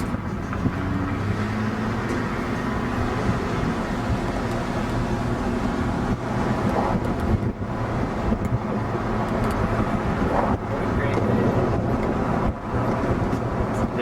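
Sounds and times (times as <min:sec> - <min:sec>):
car driving rumble: 0:00.0 - 0:14.0
wind buffeting: 0:00.0 - 0:14.0.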